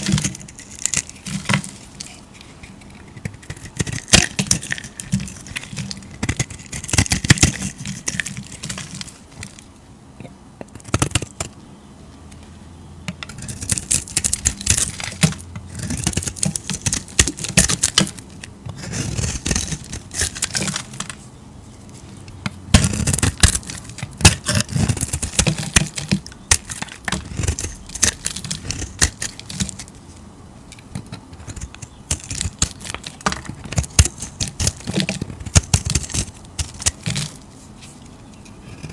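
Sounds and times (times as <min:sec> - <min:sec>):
knife cutting soap: 0:13.2 - 0:21.2, 0:22.8 - 0:29.9, 0:30.9 - 0:37.4.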